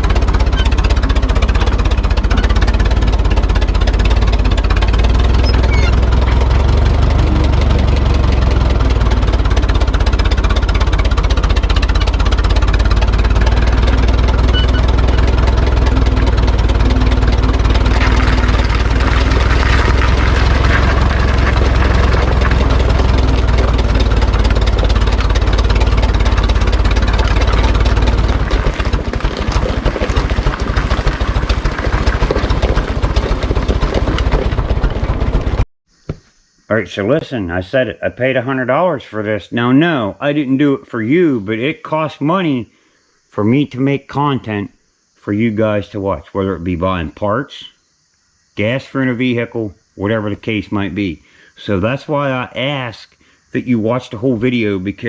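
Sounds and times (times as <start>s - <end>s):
tractor engine idling: 0.0s - 35.7s.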